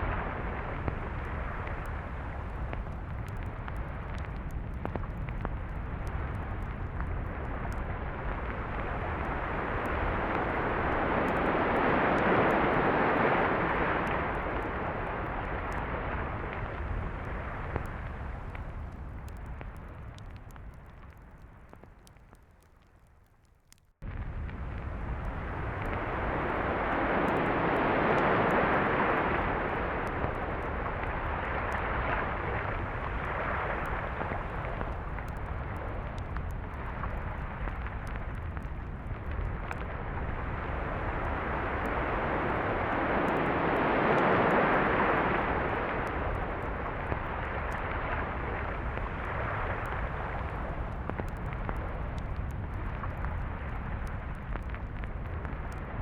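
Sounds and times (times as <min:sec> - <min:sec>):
surf breaking and washing: 0:08.2 - 0:18.4, 0:25.5 - 0:35.1, 0:40.4 - 0:51.1.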